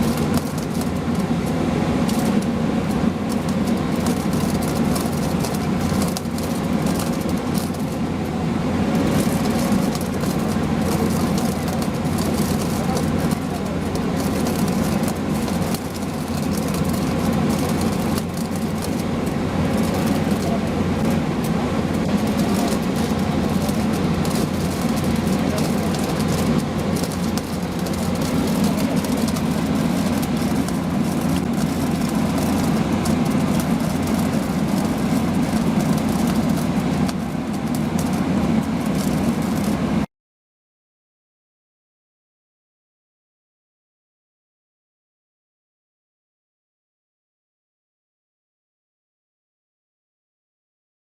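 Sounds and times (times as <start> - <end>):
welding machinery droning: 0.0 - 40.1.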